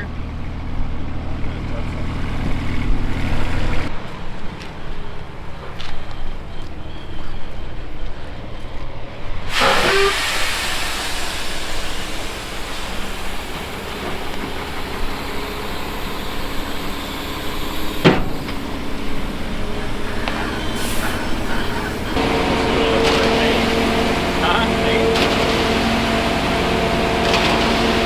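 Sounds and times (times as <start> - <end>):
vehicle engine rumbling: 0.0 - 10.1, 10.9 - 28.0
loud steady hiss: 9.5 - 28.0.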